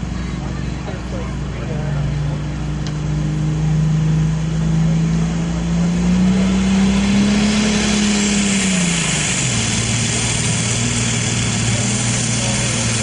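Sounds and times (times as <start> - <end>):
tractor engine running under load: 0.0 - 13.0
hiss: 6.5 - 13.0.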